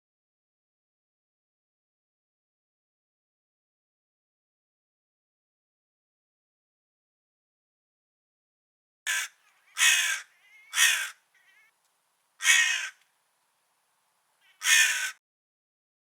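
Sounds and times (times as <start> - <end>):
crow cawing: 9.1 - 11.8, 12.4 - 13.0, 14.4 - 15.2.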